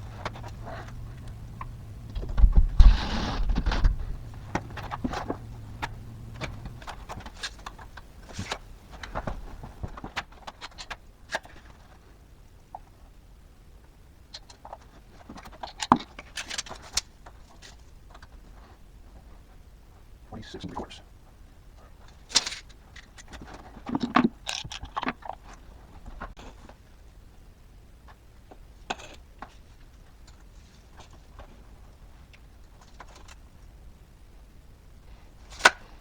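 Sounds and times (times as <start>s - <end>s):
burst of noise: 0.0s - 5.8s
low steady hum: 0.0s - 10.6s
clicks and light knocks: 0.0s - 11.9s.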